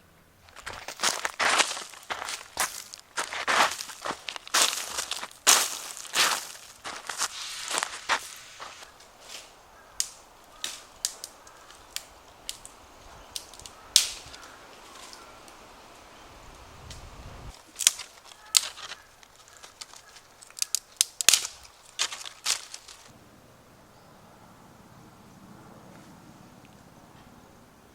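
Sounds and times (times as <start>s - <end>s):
campfire crackling and popping: 0.4s - 23.1s.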